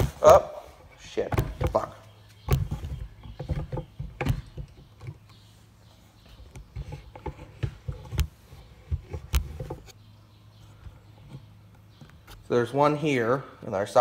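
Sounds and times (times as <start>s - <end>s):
clicks and knocks of hand work: 1.2s - 5.4s, 6.3s - 10.0s.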